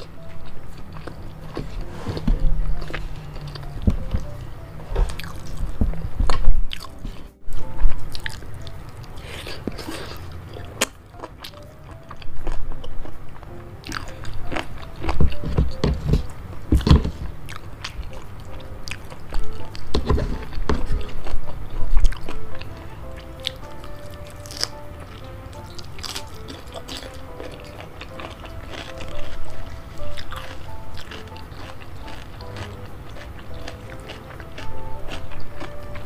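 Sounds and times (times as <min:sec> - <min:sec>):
person chewing: 0:00.0 - 0:36.0.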